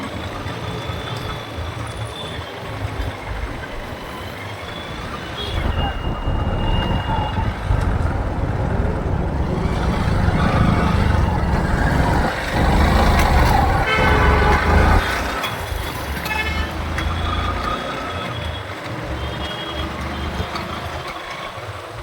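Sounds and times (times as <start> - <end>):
road traffic rumble: 0.0 - 22.0
vehicle horns honking: 4.7 - 21.3.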